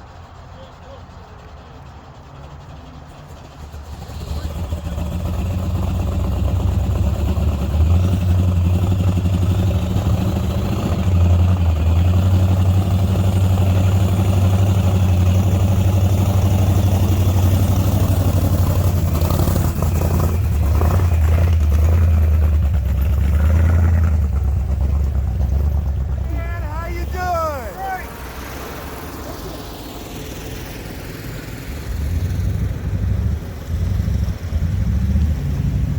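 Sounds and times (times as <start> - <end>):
vehicle engine idling: 0.0 - 35.9.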